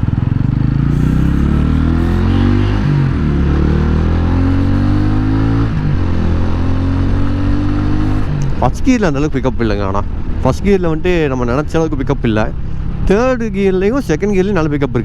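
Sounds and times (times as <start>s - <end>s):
motorcycle engine accelerating: 0.0s - 10.4s.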